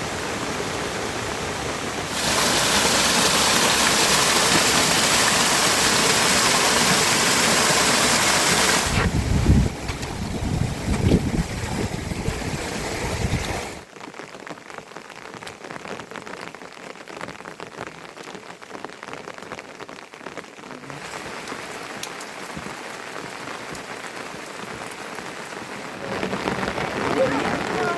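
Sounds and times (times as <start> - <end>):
heavy rain rushing: 0.0 - 14.1, 19.6 - 27.9
raindrops pattering: 0.2 - 27.9.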